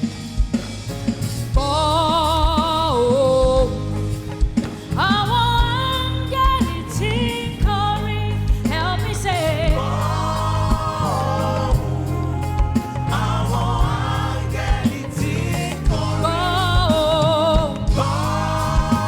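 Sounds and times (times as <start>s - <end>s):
bass and drums: 0.0s - 19.0s
person singing with vibrato: 5.0s - 19.0s.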